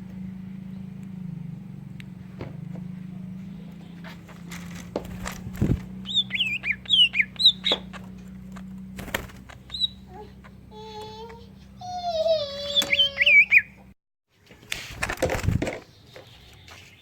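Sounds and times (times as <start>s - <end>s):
steady low hum: 0.0s - 12.7s
bird singing chirps and whistles: 6.0s - 8.0s, 9.6s - 10.1s, 12.7s - 13.8s.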